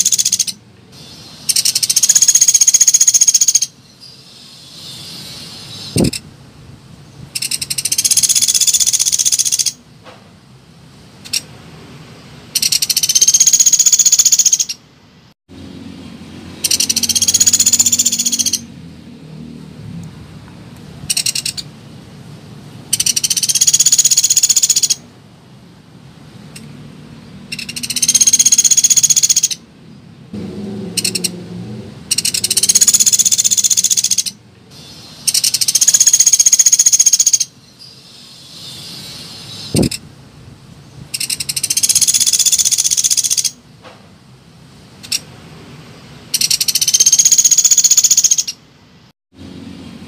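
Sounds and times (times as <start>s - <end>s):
woodpecker rattling trills: 0.0s - 0.6s, 1.5s - 3.8s, 7.4s - 9.8s, 12.6s - 14.8s, 16.6s - 18.7s, 21.1s - 21.6s, 22.9s - 25.0s, 27.5s - 29.6s, 31.0s - 31.4s, 32.1s - 34.4s, 35.2s - 37.5s, 41.1s - 43.6s, 46.3s - 48.6s.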